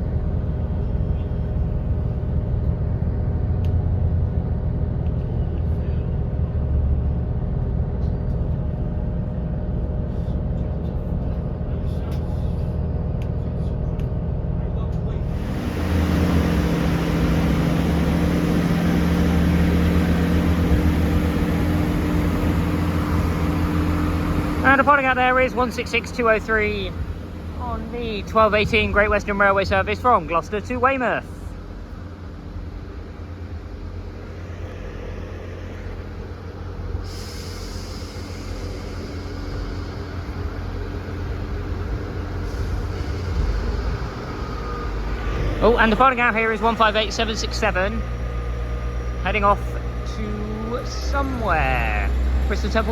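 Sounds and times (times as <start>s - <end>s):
train diesel engines droning: 0.0s - 52.9s
high hiss: 34.1s - 45.2s.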